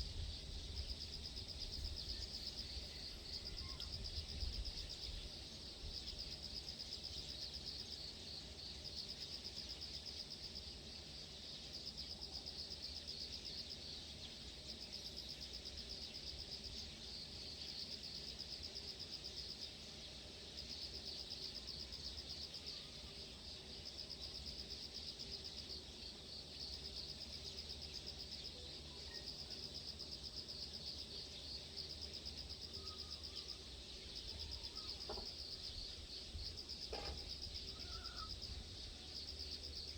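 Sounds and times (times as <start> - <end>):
insects trilling: 0.0 - 39.9
faint bird chirps: 1.8 - 5.3, 28.4 - 29.6, 32.6 - 36.0, 36.9 - 39.0.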